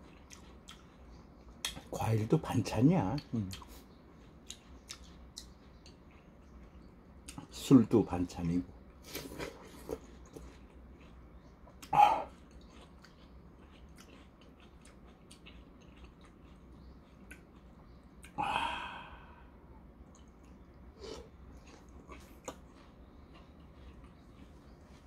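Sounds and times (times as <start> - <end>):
person chewing watermelon: 0.0 - 25.0
breathy exhale: 18.4 - 19.6.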